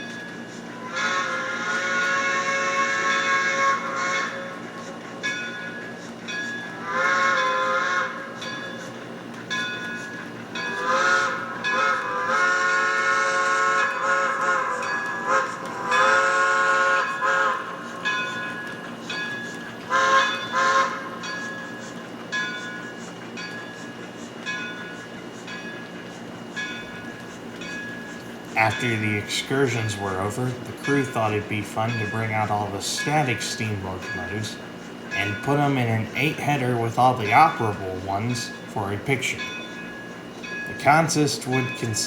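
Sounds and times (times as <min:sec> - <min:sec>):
locomotive chuffing: 0:00.0 - 0:42.0
model train steam whistle: 0:00.7 - 0:05.0, 0:06.7 - 0:08.6, 0:10.6 - 0:19.2, 0:19.8 - 0:21.5, 0:27.7 - 0:36.0.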